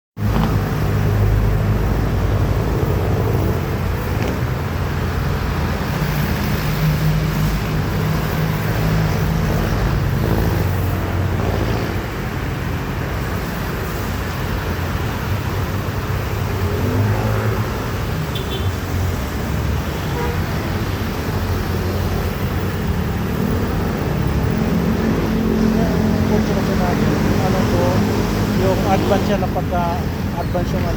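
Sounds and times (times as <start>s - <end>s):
car engine rumbling: 20.6s - 30.9s.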